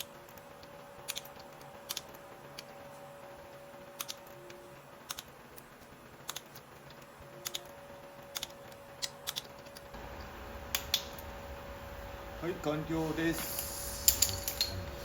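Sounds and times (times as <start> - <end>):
torque wrench clicking: 13.4 - 14.8.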